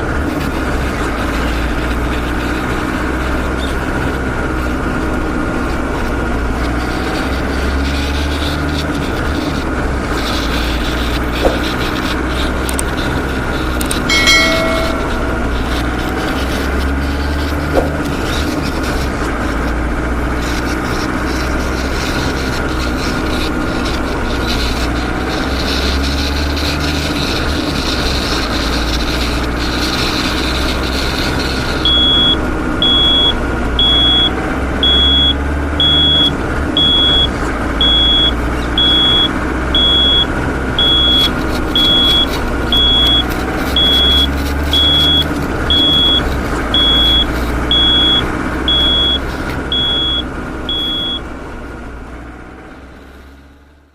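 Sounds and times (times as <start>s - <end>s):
toy vehicle motor running: 0.2s - 14.1s, 16.0s - 51.2s
high electronic reversing beep: 14.1s - 15.8s, 31.8s - 51.2s.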